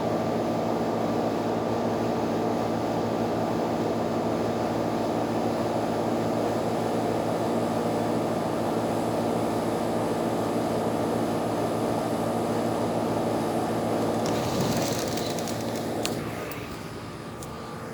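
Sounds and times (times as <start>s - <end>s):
motor droning: 14.0s - 17.6s.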